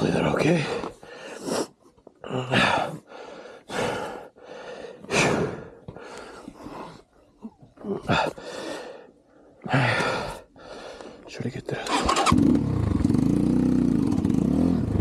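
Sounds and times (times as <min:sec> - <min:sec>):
man breathing hard: 0:00.7 - 0:01.8, 0:02.5 - 0:07.2, 0:08.0 - 0:11.3.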